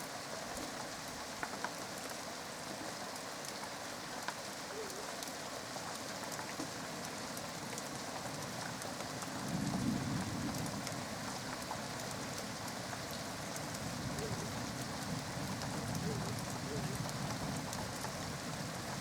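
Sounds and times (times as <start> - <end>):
raindrops ticking close by: 0.0 - 19.0
steady rain falling: 0.0 - 19.0
rumble of thunder: 9.4 - 11.1.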